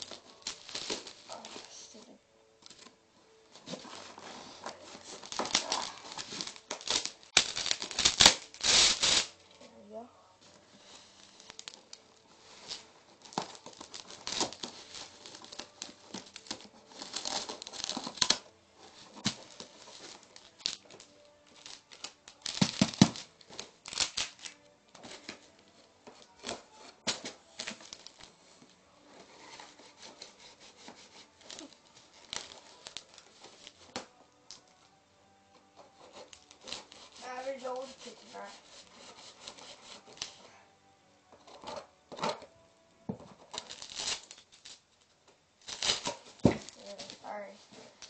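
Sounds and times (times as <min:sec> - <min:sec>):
packaging rustling: 0:00.0 - 0:02.0, 0:02.6 - 0:09.4, 0:10.5 - 0:34.7, 0:43.4 - 0:45.0, 0:45.6 - 0:48.0
knife cutting packaging: 0:03.7 - 0:09.4, 0:12.7 - 0:18.4, 0:29.2 - 0:33.9, 0:35.9 - 0:40.4, 0:45.6 - 0:47.2.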